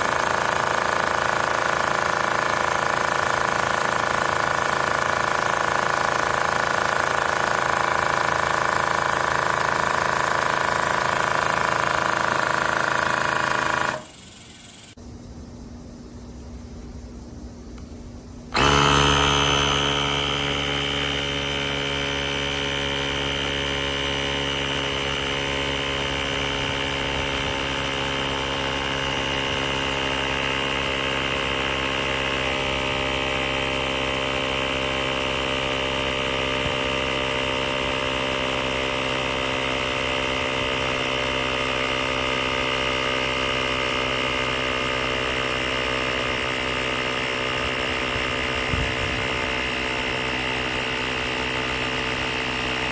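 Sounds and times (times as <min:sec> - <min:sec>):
electric air pump humming: 0:00.0 - 0:52.9.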